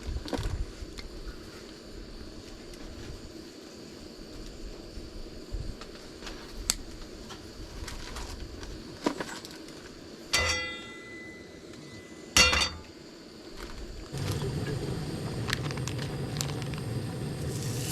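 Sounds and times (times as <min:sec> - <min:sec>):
tableware clinking: 0:10.4 - 0:12.8.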